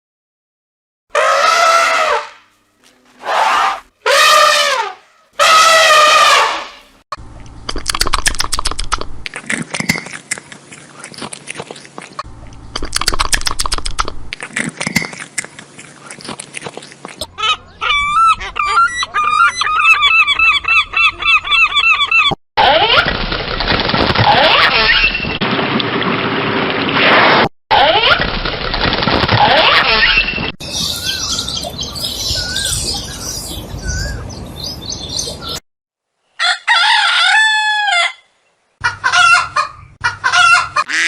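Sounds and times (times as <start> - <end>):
goose honking: 1.2 - 2.4, 3.2 - 6.8.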